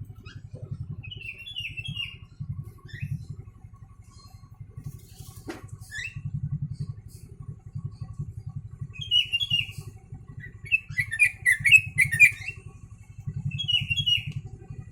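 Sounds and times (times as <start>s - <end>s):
low pulsing hum: 0.0s - 14.9s
bird whistling song: 1.0s - 3.3s, 5.8s - 6.3s, 8.9s - 12.6s, 13.5s - 14.4s.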